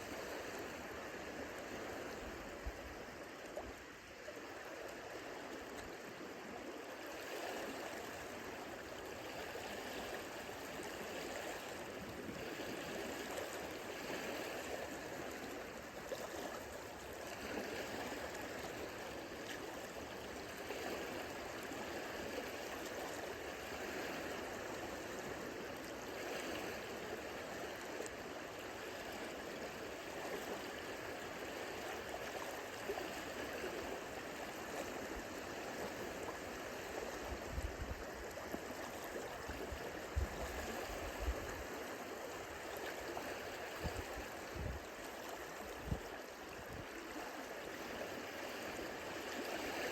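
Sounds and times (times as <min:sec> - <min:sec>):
lake waves lapping at shore: 0:00.0 - 0:49.9.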